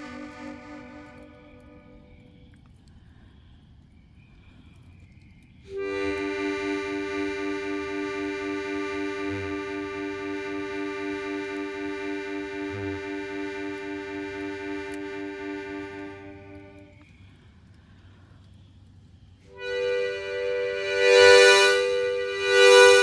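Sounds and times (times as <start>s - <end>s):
harmonica holding a chord: 0.0s - 2.2s, 5.7s - 17.0s, 19.5s - 23.0s.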